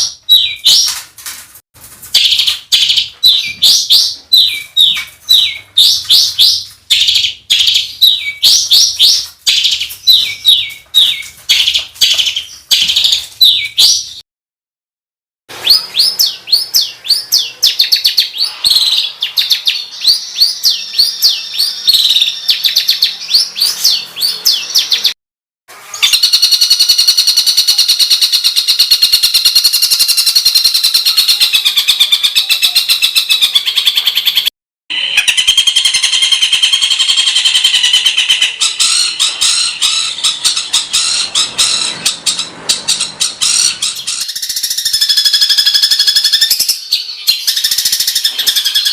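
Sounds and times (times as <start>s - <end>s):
fast harsh bird trill: 25.8s - 48.9s
sweeping bird chirps: 25.9s - 48.9s.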